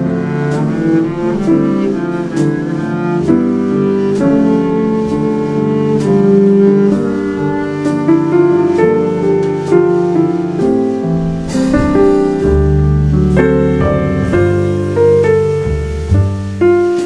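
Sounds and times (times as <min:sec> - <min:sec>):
piano chords and melody: 0:00.0 - 0:17.0
sustained bass notes: 0:10.2 - 0:17.0
drum cymbals ticking: 0:10.6 - 0:17.0.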